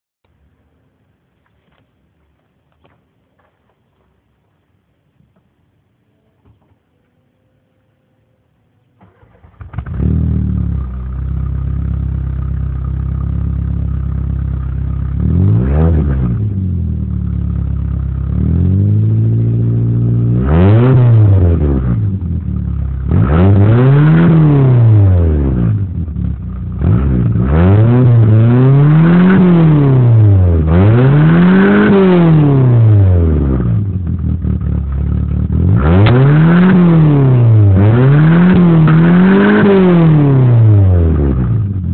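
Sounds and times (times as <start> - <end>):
car engine starting: 8.9 - 41.9
car engine idling: 9.0 - 20.3, 21.9 - 23.2, 24.9 - 28.4, 32.9 - 37.9
car engine revving: 9.0 - 41.9.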